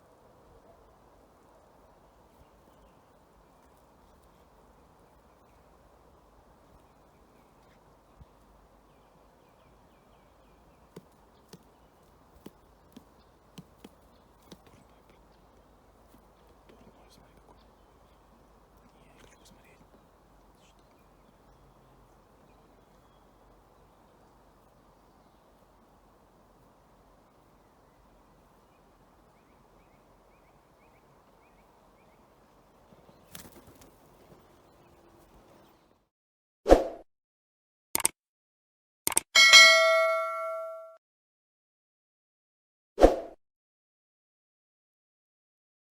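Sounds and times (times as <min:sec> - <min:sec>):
woodpecker tapping on wood: 0:03.6 - 0:24.7
short bird chirps: 0:39.4 - 0:40.8.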